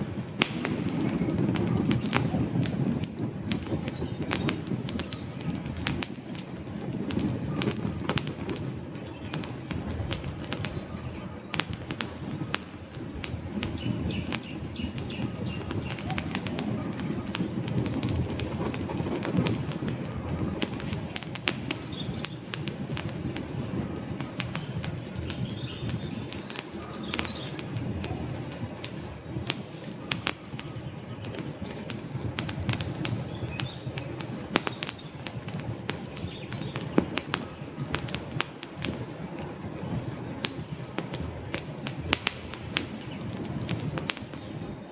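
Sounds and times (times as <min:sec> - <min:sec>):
campfire crackling: 0:00.0 - 0:44.9.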